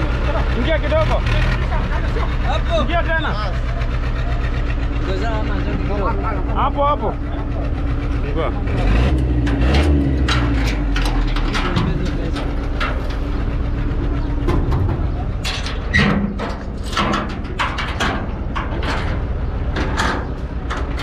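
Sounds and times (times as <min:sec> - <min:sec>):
truck engine idling: 0:00.0 - 0:21.0
short knocks and clatter: 0:09.2 - 0:21.0.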